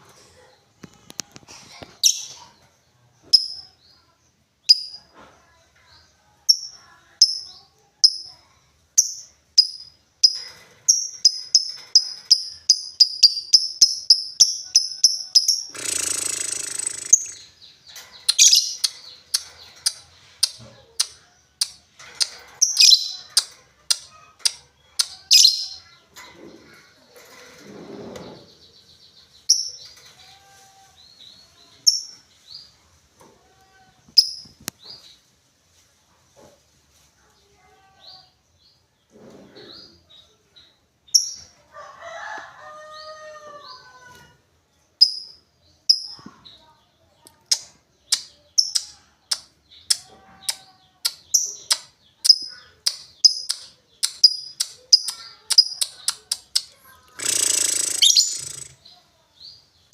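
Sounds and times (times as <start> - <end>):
lovebird chirping: 9.0 - 25.9, 47.3 - 59.0.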